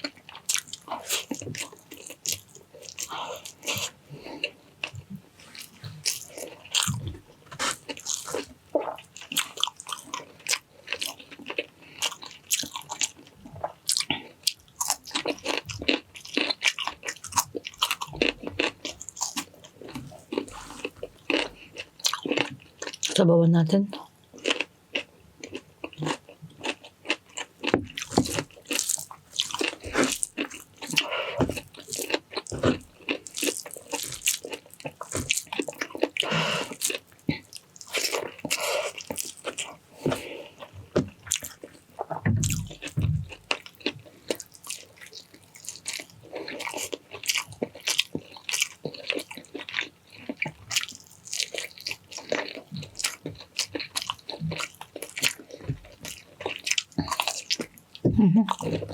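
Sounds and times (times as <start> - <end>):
wet chewing and mouth smacking: 0.0 - 23.2, 23.9 - 58.9.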